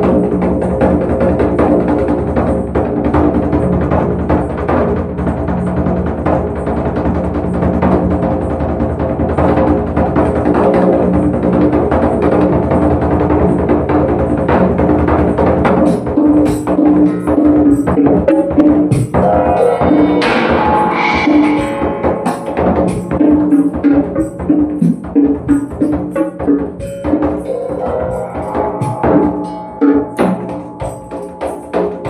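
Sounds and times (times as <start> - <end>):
drum strikes: 15.6 - 32.0
steady ringing tones: 19.2 - 24.3.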